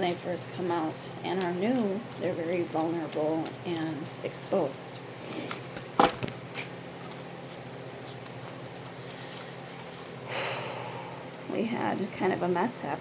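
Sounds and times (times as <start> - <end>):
cards being shuffled: 1.3 - 4.8, 5.4 - 10.2
cards rustling: 1.3 - 4.8, 5.4 - 10.2.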